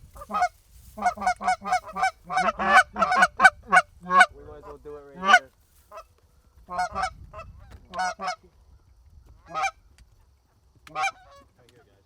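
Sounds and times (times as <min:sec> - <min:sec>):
geese honking: 0:00.1 - 0:06.1, 0:06.7 - 0:08.4, 0:09.4 - 0:09.8, 0:10.9 - 0:11.5.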